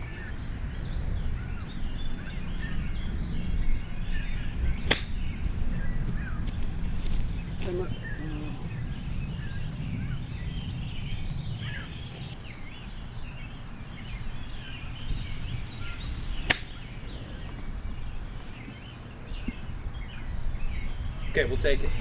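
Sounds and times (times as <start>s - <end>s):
birds chirping: 0.0s - 22.0s
low outdoor rumble: 0.0s - 22.0s
golf club striking ball: 4.8s - 5.4s, 16.4s - 16.8s.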